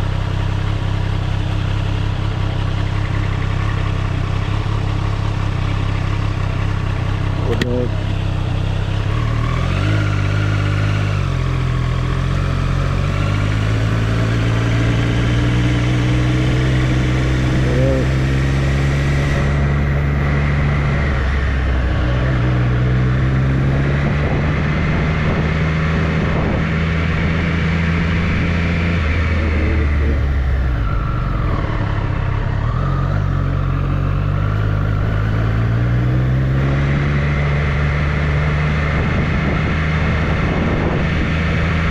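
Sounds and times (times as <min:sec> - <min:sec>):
motorcycle engine revving through gears: 0:00.0 - 0:41.9.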